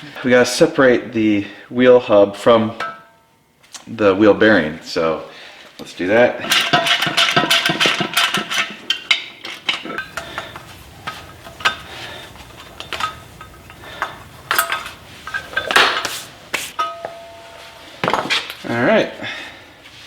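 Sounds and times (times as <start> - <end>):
metal tools clinking and knocking: 6.4 - 18.7.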